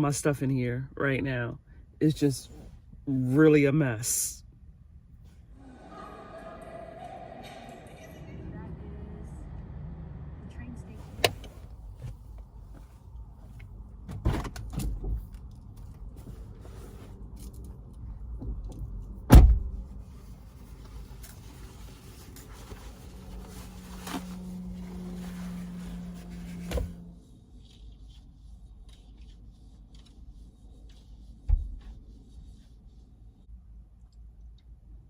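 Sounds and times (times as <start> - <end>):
knocks and thumps inside a car: 11.0 - 15.4, 18.3 - 19.9, 24.1 - 27.0, 31.4 - 32.0.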